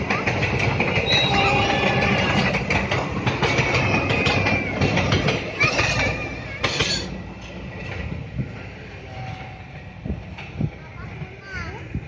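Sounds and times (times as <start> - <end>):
train wheels clicking and rumbling: 0.0 - 12.0
high wheel squeal: 0.9 - 2.6.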